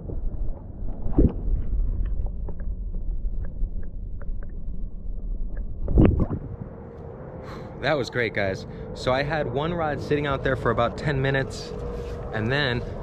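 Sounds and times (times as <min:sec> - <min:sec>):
wind on microphone: 0:05.7 - 0:06.8.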